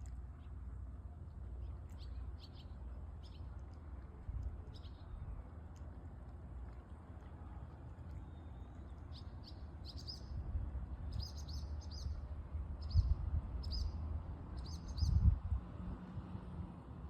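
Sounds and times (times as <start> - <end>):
small bird chirping: 8.3 - 10.3, 11.1 - 12.2.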